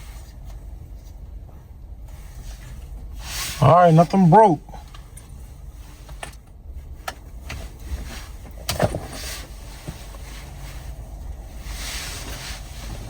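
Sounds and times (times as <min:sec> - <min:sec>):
low steady rumble: 0:00.0 - 0:13.0
clicks and knocks of car parts: 0:08.4 - 0:09.2.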